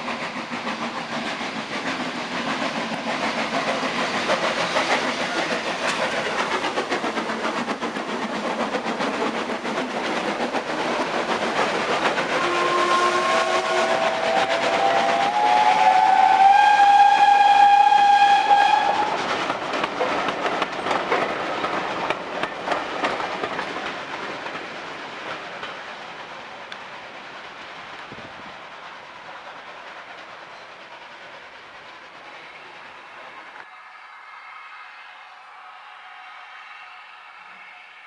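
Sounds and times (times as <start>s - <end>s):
train running with wheel clicks: 0.0s - 38.0s
steam locomotive whistle: 12.2s - 19.3s.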